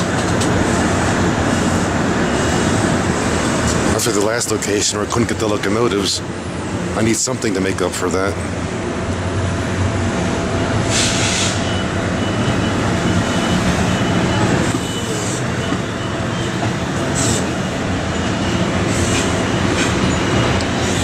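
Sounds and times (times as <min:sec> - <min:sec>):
commuter train rumbling on tracks: 0:00.0 - 0:21.0
train air hisses: 0:10.8 - 0:11.8, 0:15.0 - 0:15.5, 0:17.0 - 0:17.6, 0:18.8 - 0:20.1.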